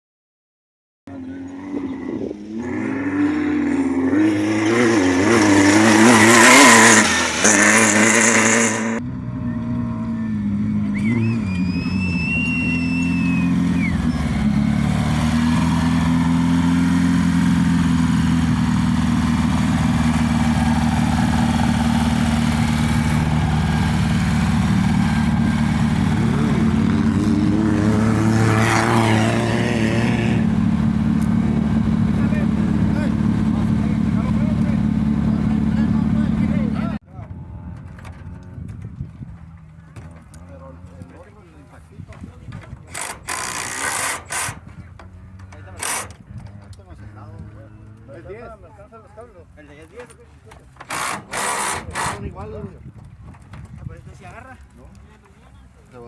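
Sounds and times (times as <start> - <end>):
off-road vehicle engine revving: 1.1 - 52.7
high whine: 10.1 - 37.0.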